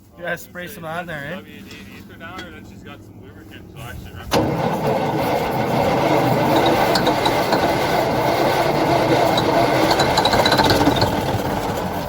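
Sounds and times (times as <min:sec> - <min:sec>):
truck engine running rough: 0:02.4 - 0:12.0.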